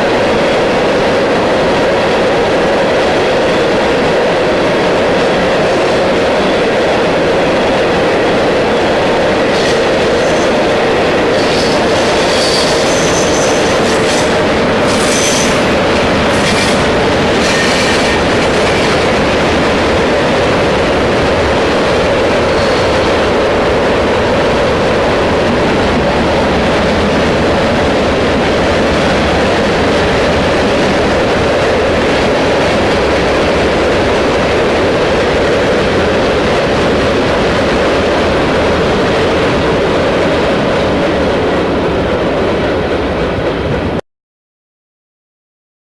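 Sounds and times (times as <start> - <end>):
freight train wheels on rail: 0.0 - 44.0
high wheel squeals: 11.3 - 18.9, 22.5 - 23.2.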